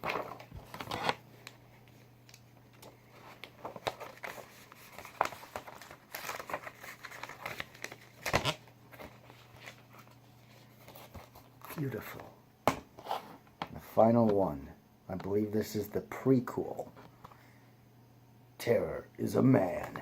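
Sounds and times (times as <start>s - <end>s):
paper rustling and crinkling: 0.0s - 12.3s.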